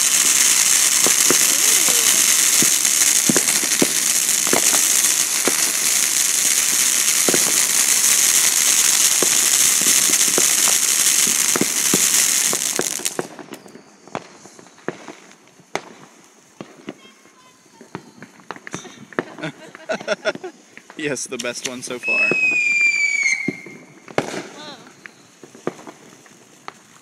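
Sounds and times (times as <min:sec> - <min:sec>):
crackling pops: 0:00.0 - 0:17.1, 0:20.7 - 0:22.3, 0:23.5 - 0:27.0
firework hissing: 0:00.0 - 0:27.0.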